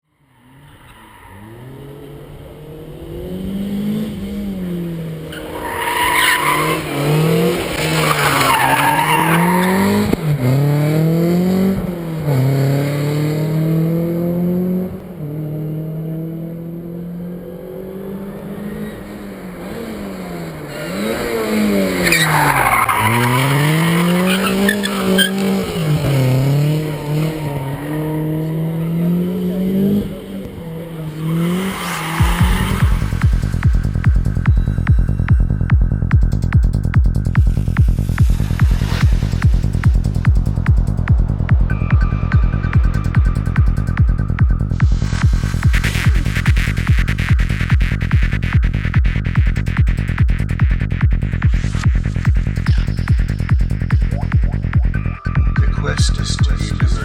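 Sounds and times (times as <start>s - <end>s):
rally car engine revving: 0.3s - 57.0s
tyre squeal: 20.7s - 28.9s.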